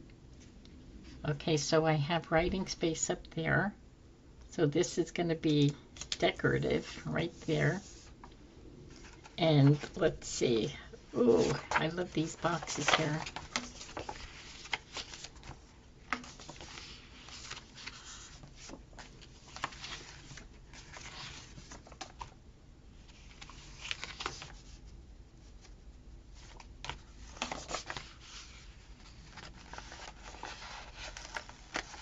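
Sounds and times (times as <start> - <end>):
paper rustling: 11.2 - 22.4, 23.1 - 24.8, 25.5 - 32.0.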